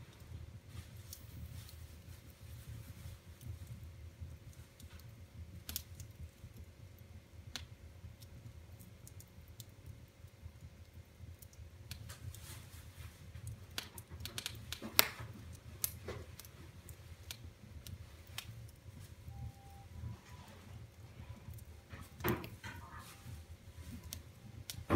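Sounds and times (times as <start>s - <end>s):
wood fire crackling: 0.0s - 24.9s
sharp pops and snaps: 4.5s - 12.5s, 13.4s - 18.9s.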